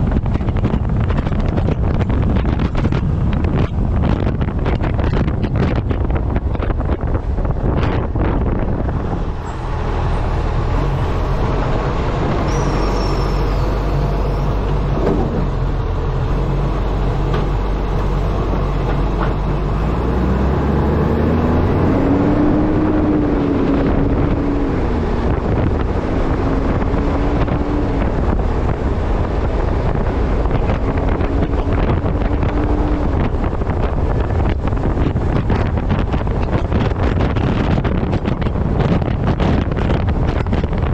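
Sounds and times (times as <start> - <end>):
truck engine running: 0.0 - 40.9
wind buffeting microphone: 0.0 - 40.9
rising tone: 8.4 - 28.1.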